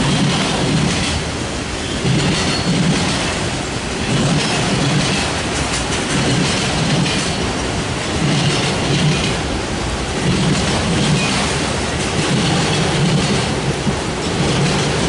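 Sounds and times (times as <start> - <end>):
freight train wheels rumbling: 0.0 - 15.0
clickety-clack of car wheels: 2.0 - 3.4, 4.0 - 9.5, 10.2 - 15.0.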